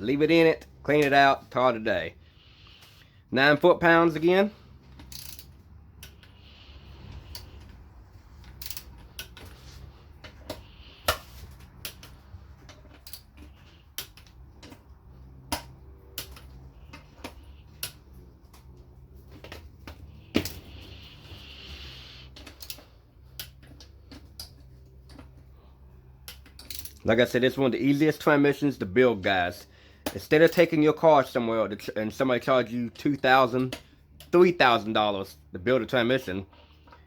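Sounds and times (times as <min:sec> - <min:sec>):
torque wrench clicking: 0:05.0 - 0:06.4, 0:08.4 - 0:09.4.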